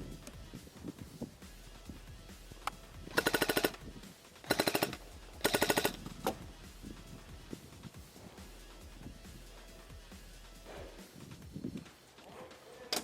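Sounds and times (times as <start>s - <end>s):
airsoft gun firing bursts: 2.6s - 6.5s.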